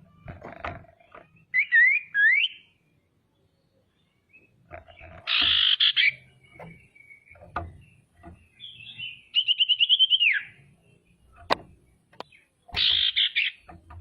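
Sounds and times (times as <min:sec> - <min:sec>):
bird calling with chattering trill: 0:01.0 - 0:02.8, 0:04.3 - 0:14.0.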